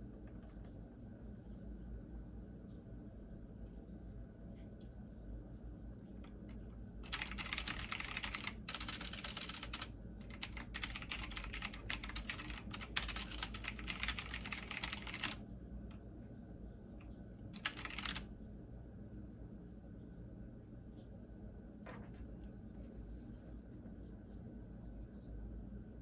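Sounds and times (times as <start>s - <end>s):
steady low hum: 0.0s - 26.0s
computer keyboard typing: 6.2s - 15.4s, 17.6s - 18.3s.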